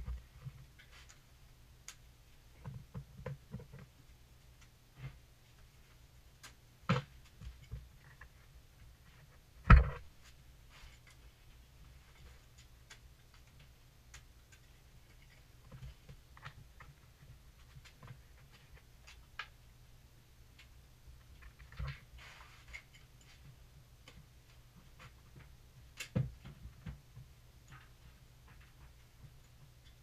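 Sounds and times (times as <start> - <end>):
low steady hum: 0.0 - 30.0
scrape: 22.1 - 22.9.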